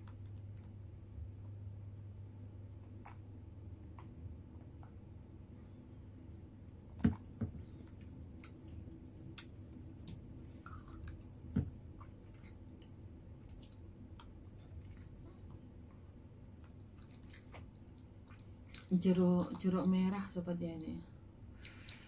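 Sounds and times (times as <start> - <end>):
person chewing food: 2.7 - 5.2, 6.4 - 18.9, 21.6 - 22.0.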